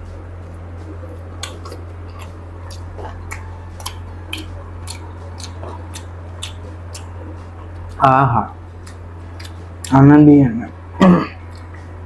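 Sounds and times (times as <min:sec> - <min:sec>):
low hum: 0:00.0 - 0:12.0
chewing chicken drumstick: 0:01.3 - 0:08.0.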